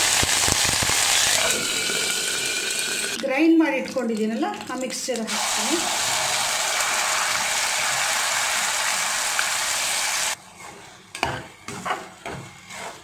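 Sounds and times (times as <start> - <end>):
paste sizzling in hot oil: 0.0 - 3.2, 5.3 - 10.4.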